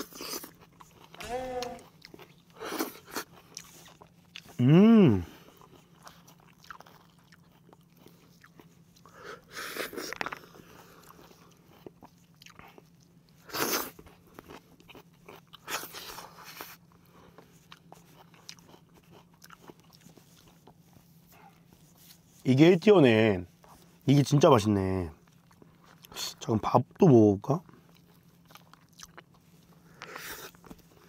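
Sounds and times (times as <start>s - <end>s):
chewing and crunching salad: 0.0s - 31.0s.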